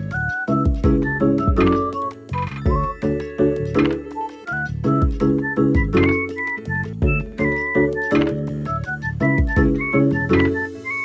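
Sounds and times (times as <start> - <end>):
light keyboard tune: 0.0 - 11.0
high chiming melody: 1.5 - 5.2.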